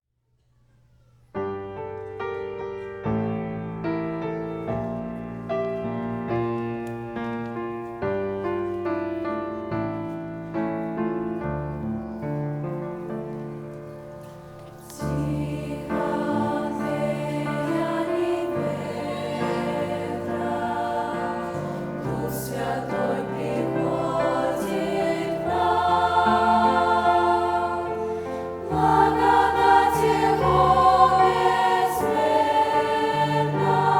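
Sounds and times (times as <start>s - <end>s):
slow piano chords: 1.3s - 33.9s
choir singing a hymn: 11.6s - 33.9s.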